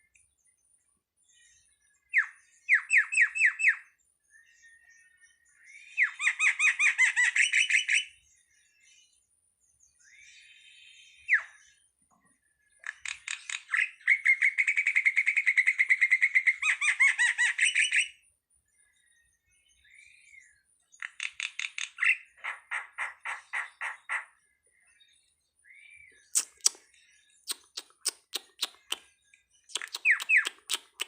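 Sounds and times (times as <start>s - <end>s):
starling chattering song: 26.3s - 31.0s.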